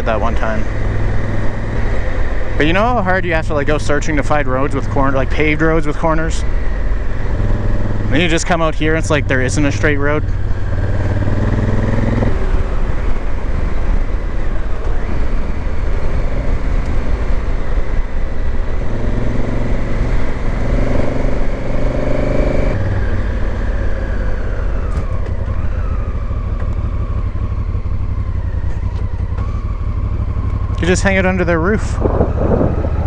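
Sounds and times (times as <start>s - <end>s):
motorcycle engine running: 0.0s - 33.0s
wind rushing: 31.8s - 33.0s.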